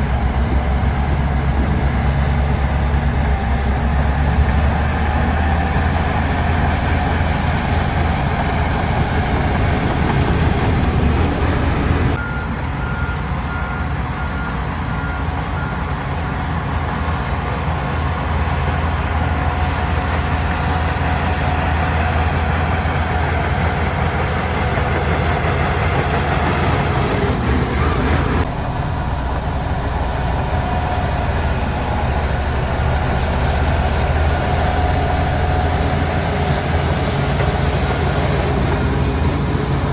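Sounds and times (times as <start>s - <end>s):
heavy diesel engines running: 0.0s - 39.9s
reversing alarm beeping: 12.1s - 16.6s.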